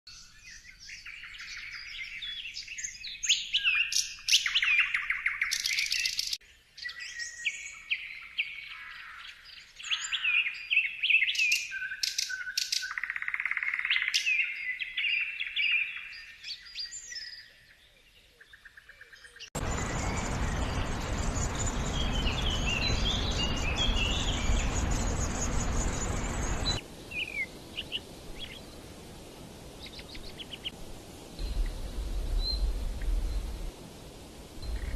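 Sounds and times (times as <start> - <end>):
songbirds singing: 0.1 - 34.9
loud rushing noise: 19.6 - 26.8.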